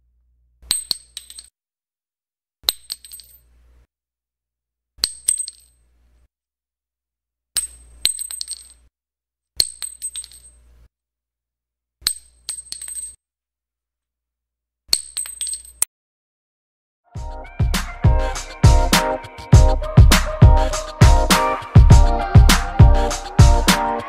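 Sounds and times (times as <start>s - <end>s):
shell casings clinking on concrete: 12.4s - 13.2s.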